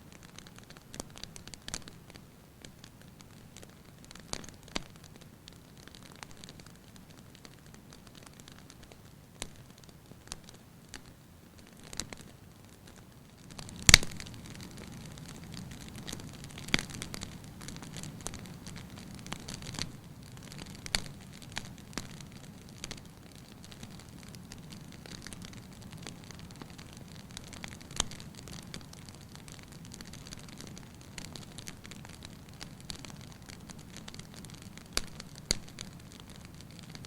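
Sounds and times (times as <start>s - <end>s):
wood fire crackling: 0.0s - 37.0s
sharp pops of fire: 13.4s - 37.0s.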